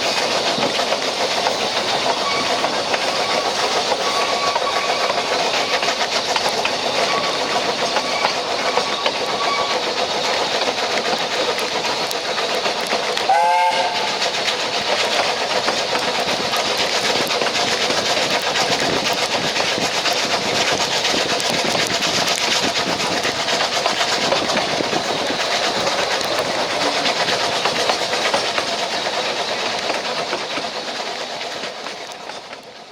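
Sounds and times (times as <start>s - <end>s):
train wheels rumbling on rails: 0.0s - 32.9s
steam train whistle: 13.3s - 14.3s.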